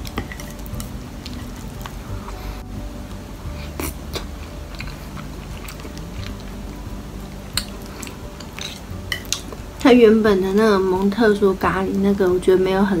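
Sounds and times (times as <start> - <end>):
person chewing food: 3.5 - 9.6.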